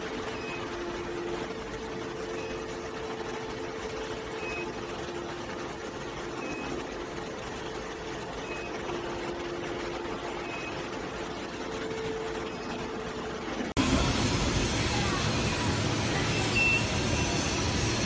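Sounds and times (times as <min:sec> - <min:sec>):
machinery humming: 0:00.0 - 0:18.0
short high beeps: 0:16.3 - 0:17.4.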